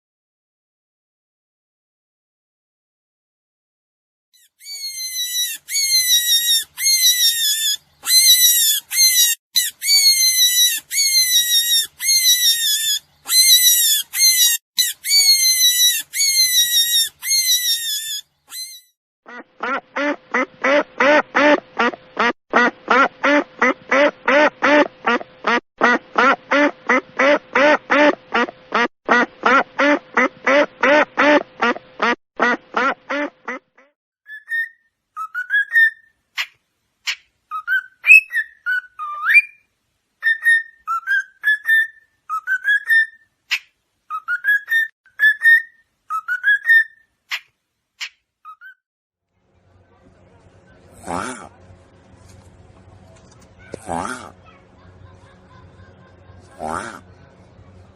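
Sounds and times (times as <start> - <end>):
high-pitched animal calls: 4.4 - 19.8, 34.3 - 39.6, 53.6 - 54.6, 56.6 - 57.0
fast lower animal calls: 4.6 - 18.8.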